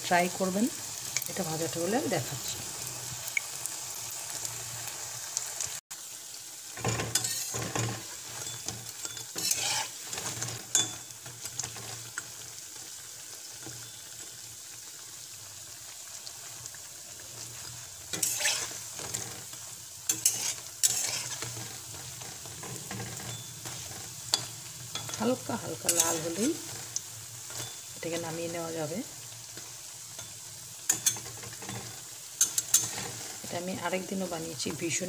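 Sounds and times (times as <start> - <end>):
fritters sizzling in oil: 0.0 - 35.0
metal spatula scraping pan: 6.8 - 12.2, 17.4 - 28.7, 29.5 - 33.5.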